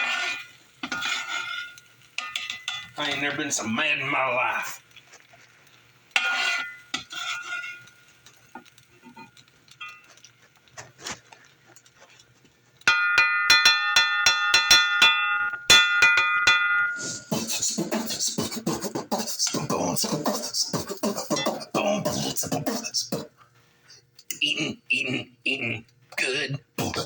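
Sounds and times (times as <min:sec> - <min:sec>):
utensil clinking on skillet: 0:00.0 - 0:03.3, 0:06.1 - 0:10.8, 0:12.8 - 0:17.0.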